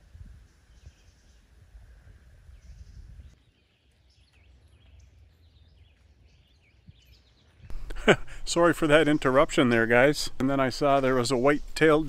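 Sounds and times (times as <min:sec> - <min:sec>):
low rumble on microphone: 0:00.0 - 0:03.4
birds chirping and calling: 0:02.6 - 0:12.0.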